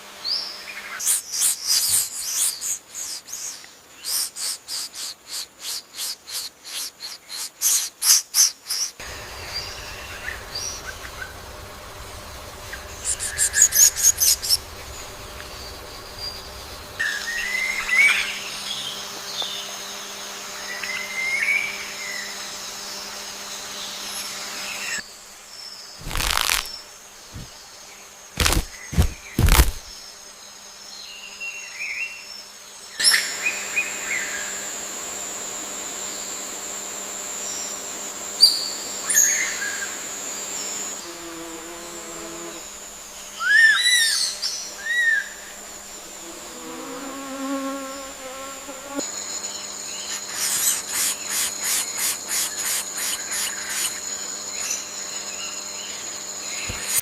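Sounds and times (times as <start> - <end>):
insect drone: 0.0 - 57.0
bird chirps: 0.9 - 18.2, 49.5 - 55.3
sharp thumps: 26.0 - 27.5, 28.4 - 30.0.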